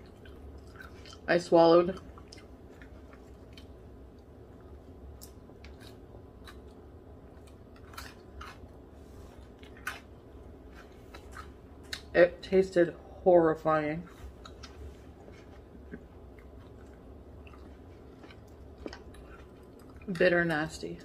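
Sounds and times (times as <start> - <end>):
faint chewing clicks: 0.0 - 1.3, 1.9 - 8.8, 9.4 - 12.1, 15.8 - 20.4
low steady hum: 0.0 - 21.0.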